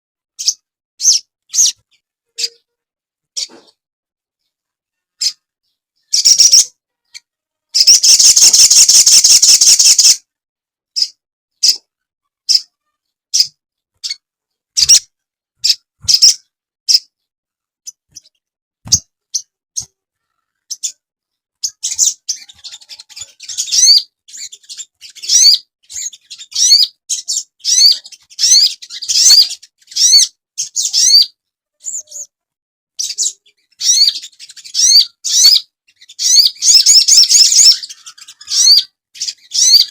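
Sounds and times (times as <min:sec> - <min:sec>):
bird sharp chirps: 0:06.0 - 0:07.2, 0:07.8 - 0:10.2, 0:33.0 - 0:39.9
bird buzzy trill: 0:07.8 - 0:10.2.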